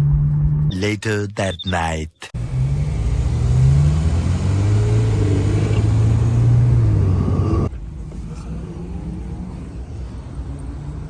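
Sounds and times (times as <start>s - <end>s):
car engine exhaust rumble: 2.4s - 11.0s.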